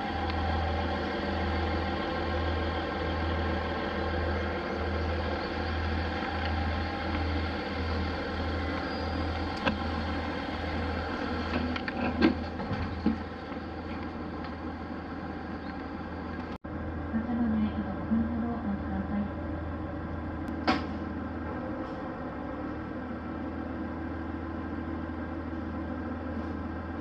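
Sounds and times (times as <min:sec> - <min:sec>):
low pulsing throb: 0:00.0 - 0:12.6
train running hum: 0:00.0 - 0:27.0.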